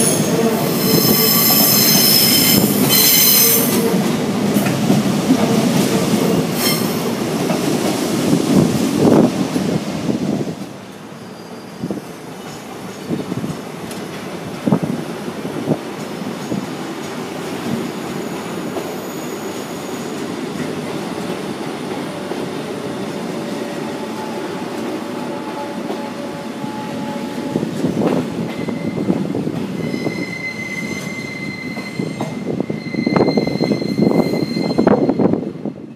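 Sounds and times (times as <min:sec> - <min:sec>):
train rumbling over rails: 0:00.0 - 0:35.9
wheel squeal: 0:29.7 - 0:35.4.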